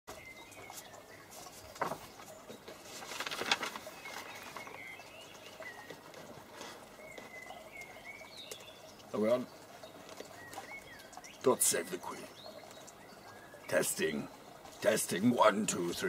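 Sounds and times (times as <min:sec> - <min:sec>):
low wavering bird calls: 0:00.1 - 0:14.9
crackling rustle: 0:00.5 - 0:07.5.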